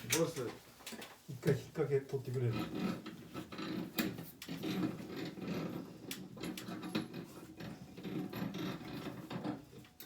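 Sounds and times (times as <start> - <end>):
metal clicks knocks and scraping: 2.7 - 10.0.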